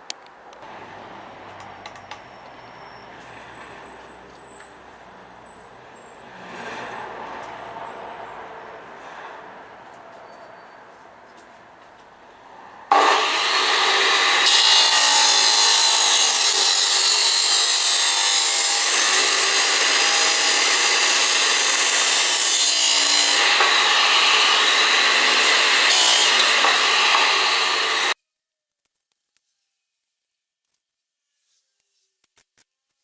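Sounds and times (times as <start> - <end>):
power tool cutting: 12.9 - 28.2.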